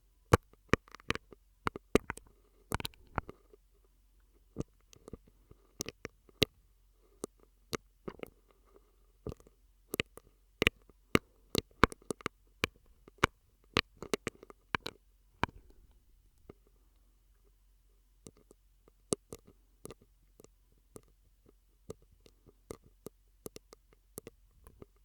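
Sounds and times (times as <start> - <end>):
mouth clicks and pops: 2.8 - 3.4.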